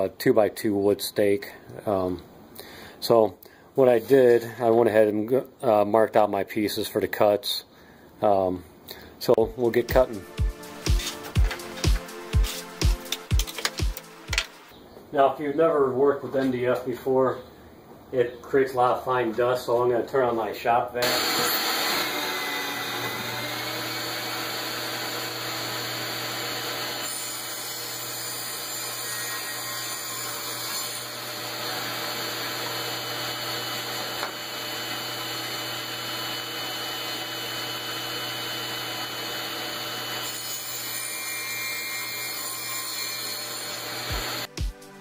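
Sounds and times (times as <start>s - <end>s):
power saw cutting board: 9.7s - 14.7s, 21.0s - 44.5s
shop vac running: 21.0s - 28.2s, 31.0s - 40.8s, 43.2s - 44.5s.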